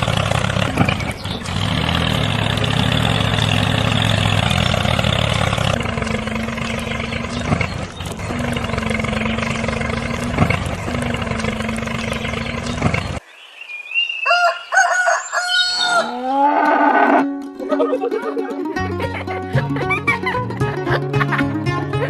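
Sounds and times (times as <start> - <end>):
whirring motor hum: 0.0 - 13.2
rooster crowing: 14.2 - 17.3.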